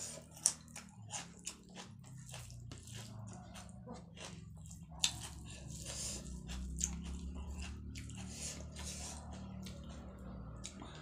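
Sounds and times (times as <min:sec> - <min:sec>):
steady low hum: 0:00.0 - 0:11.0
wet chewing and lip smacks: 0:00.0 - 0:11.0.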